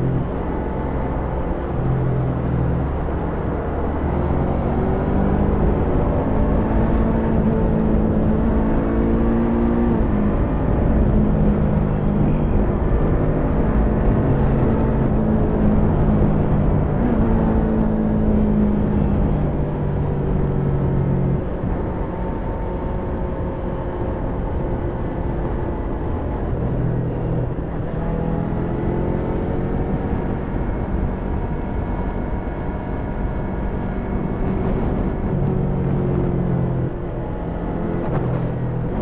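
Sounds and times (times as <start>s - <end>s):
road noise: 0.0s - 39.0s.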